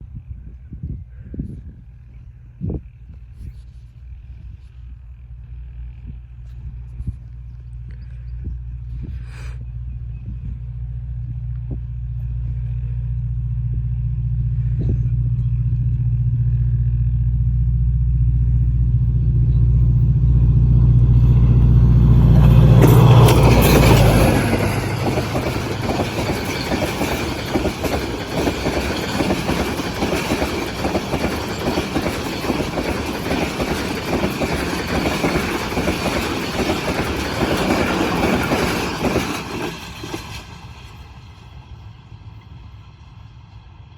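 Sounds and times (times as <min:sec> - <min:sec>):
locomotive engine drone: 0:01.6 - 0:43.9
train coaches clattering over rails: 0:20.5 - 0:41.7.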